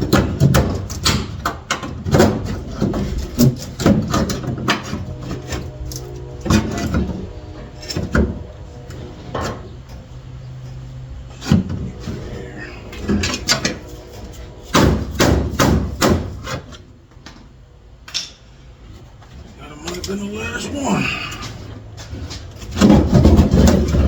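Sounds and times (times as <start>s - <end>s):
hammer blows on sheet metal: 14.6s - 16.6s.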